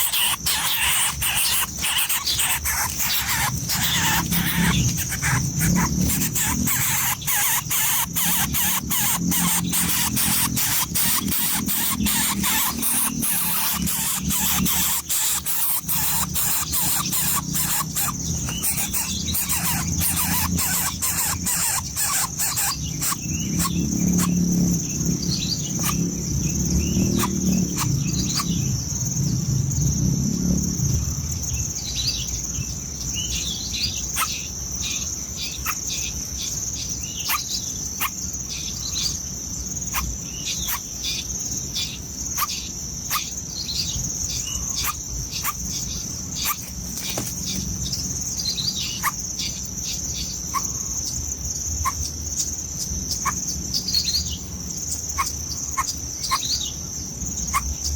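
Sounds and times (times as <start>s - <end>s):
birds chirping: 0.0s - 29.3s, 31.8s - 57.9s
high-pitched insect drone: 0.0s - 31.6s.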